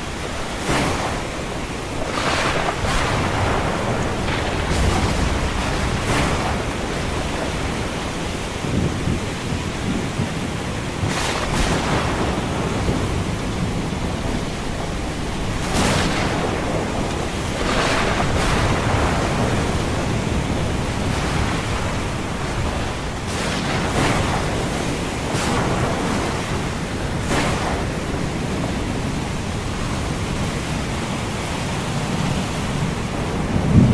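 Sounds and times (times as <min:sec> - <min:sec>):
low rumbling thunder: 0:00.0 - 0:33.9
ocean surf waves: 0:00.0 - 0:33.9.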